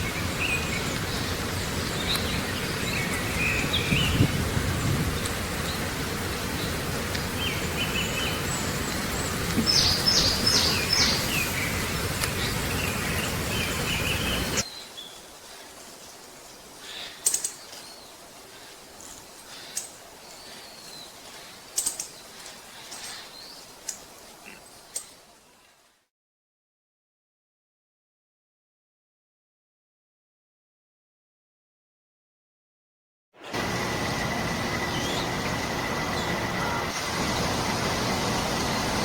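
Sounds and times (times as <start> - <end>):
wild birds calling: 0.0 - 25.7, 33.6 - 39.0
background hiss: 0.0 - 26.0.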